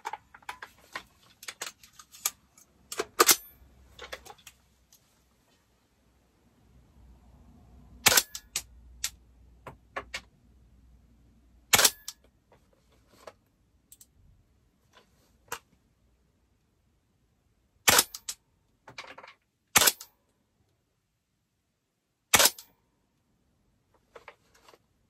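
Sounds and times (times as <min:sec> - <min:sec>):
airsoft rifle shots: 0:08.0 - 0:08.5, 0:11.7 - 0:12.1, 0:17.9 - 0:18.2, 0:19.8 - 0:20.1, 0:22.3 - 0:22.7.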